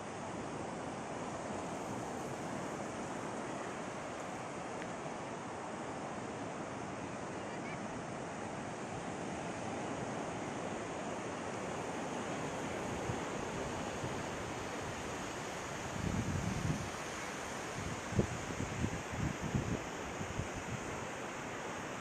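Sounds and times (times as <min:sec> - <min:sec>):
ocean surf on beach: 0:00.0 - 0:22.0
wind on microphone: 0:15.8 - 0:21.1.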